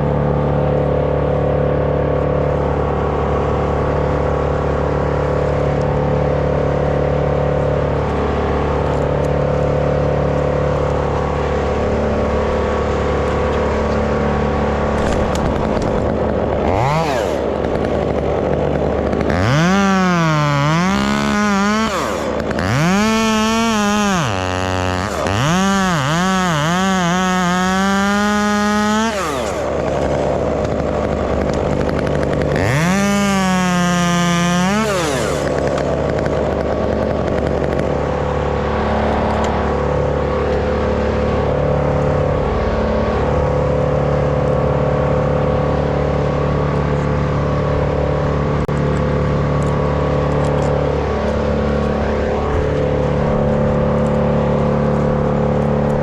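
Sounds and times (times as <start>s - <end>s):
chainsaw revving: 2.7s - 56.0s.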